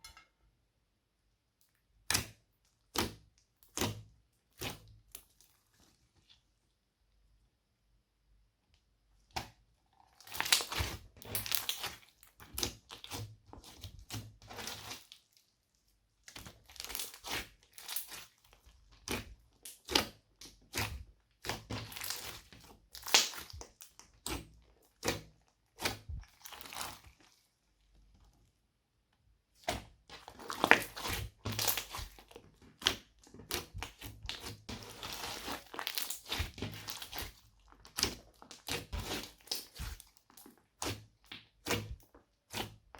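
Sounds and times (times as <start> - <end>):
slime squishing and popping: 9.4 - 15.1, 16.3 - 27.1, 29.6 - 42.9.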